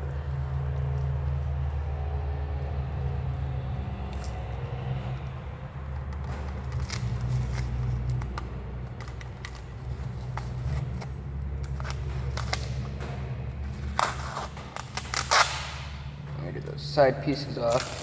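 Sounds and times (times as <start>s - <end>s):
steady low hum: 0.0s - 18.0s
tape peeling crackle: 4.0s - 5.4s, 6.0s - 16.2s, 17.5s - 18.0s
tape ripping: 6.2s - 13.0s, 13.7s - 16.1s, 17.7s - 18.0s.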